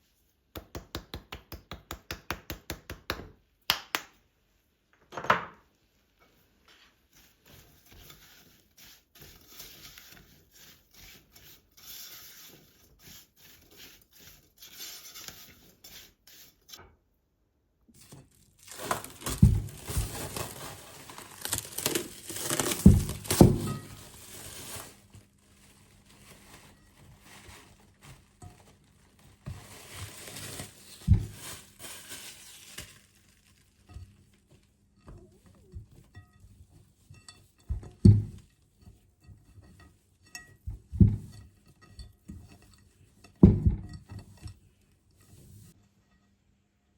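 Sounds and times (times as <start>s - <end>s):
rustling and crinkling: 17.9s - 45.8s.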